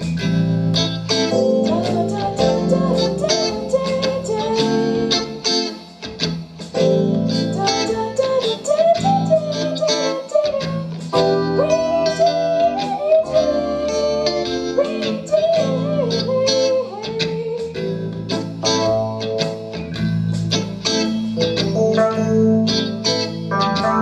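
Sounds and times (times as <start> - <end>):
bass notes: 0.0 - 9.8, 17.2 - 24.0
gliding lead melody: 0.0 - 17.0, 17.8 - 24.0
live jazz blues band: 0.0 - 24.0
plucked guitar: 0.0 - 24.0.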